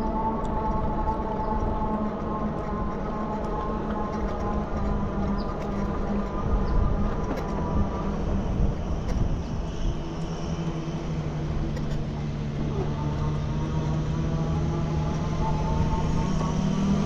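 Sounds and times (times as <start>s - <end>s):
motor hum: 0.0s - 17.0s
wind and road rumble: 0.0s - 17.0s.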